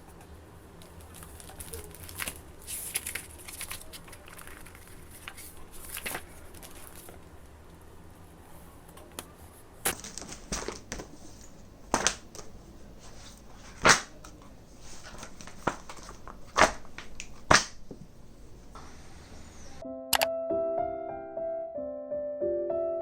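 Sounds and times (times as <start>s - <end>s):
rustling: 0.8s - 7.3s, 8.5s - 18.8s.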